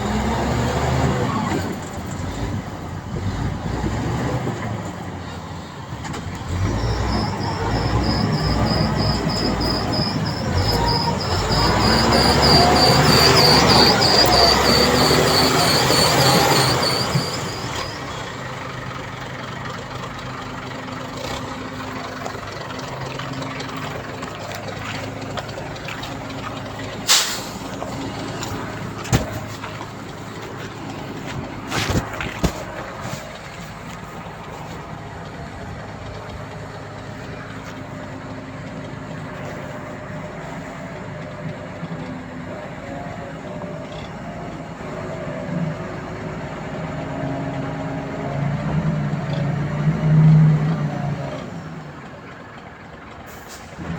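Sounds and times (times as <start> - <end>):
diesel machinery running: 0.0 - 53.9
loud high squealing: 6.5 - 18.5.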